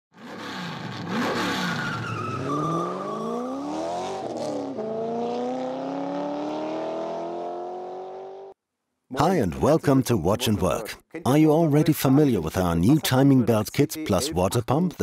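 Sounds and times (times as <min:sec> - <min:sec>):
car engine revving: 0:00.2 - 0:08.6.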